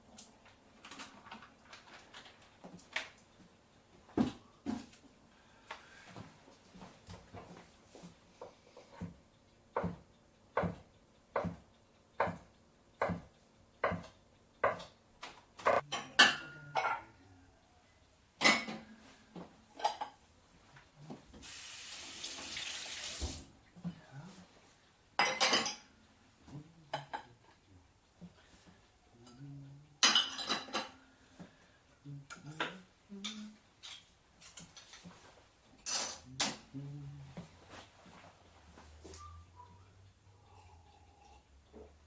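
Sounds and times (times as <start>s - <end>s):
dishes clattering: 18.4s - 18.9s, 25.2s - 25.9s, 30.0s - 31.0s.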